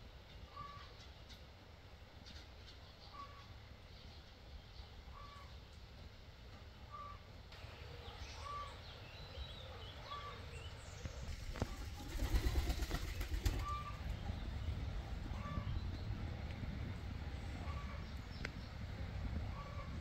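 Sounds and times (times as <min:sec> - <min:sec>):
higher bird chirps: 0:06.9 - 0:11.4
low rumbling noise: 0:10.4 - 0:20.0.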